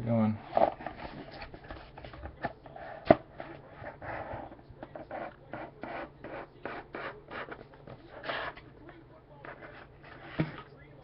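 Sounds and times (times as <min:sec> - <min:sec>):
packaging rustling and scraping: 0:00.4 - 0:05.2.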